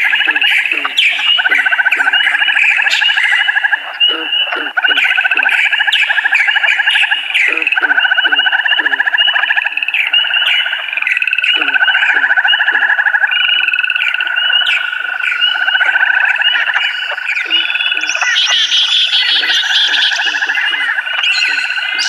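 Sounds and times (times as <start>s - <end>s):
higher frog trill: 0.0s - 2.5s, 7.4s - 9.7s, 11.2s - 14.6s
frogs calling in chorus: 0.0s - 22.0s.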